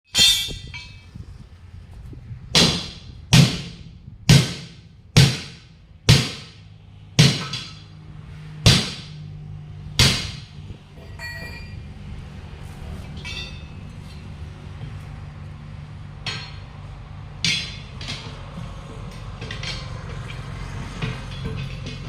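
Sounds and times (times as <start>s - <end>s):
hammer striking truck wheel: 0.1s - 1.1s, 2.5s - 8.0s, 8.6s - 9.3s, 9.9s - 11.9s, 13.2s - 14.2s, 16.2s - 22.0s.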